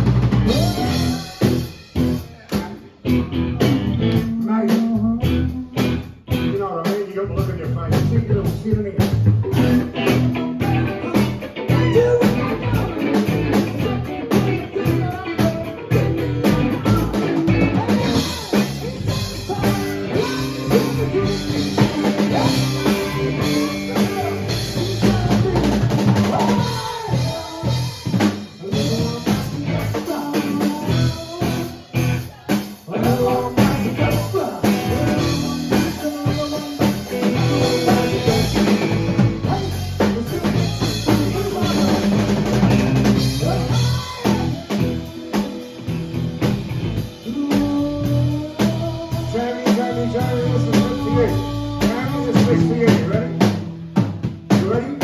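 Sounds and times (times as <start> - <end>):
live rock band playing: 0.0 - 55.0
bass drum and snare beating: 8.0 - 45.1.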